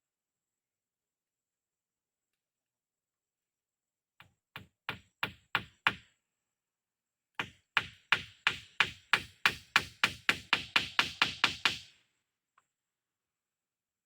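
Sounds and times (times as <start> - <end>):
sharp knocking blows: 7.4 - 11.9.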